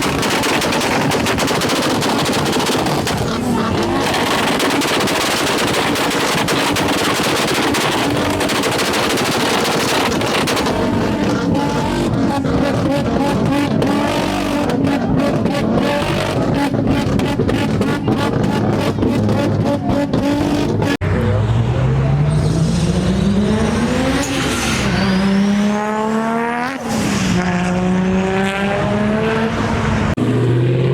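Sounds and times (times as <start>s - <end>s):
exhaust popping and crackling: 0.0s - 21.0s
steady car engine note: 0.0s - 30.9s.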